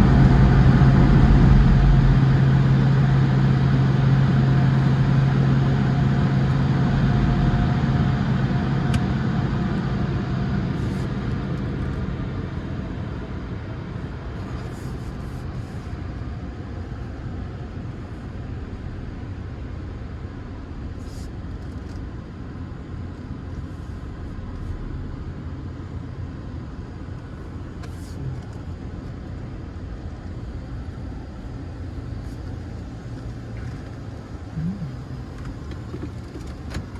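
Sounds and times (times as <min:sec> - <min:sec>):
car engine and road noise: 0:00.0 - 0:36.9
car wash machinery humming: 0:22.7 - 0:36.9.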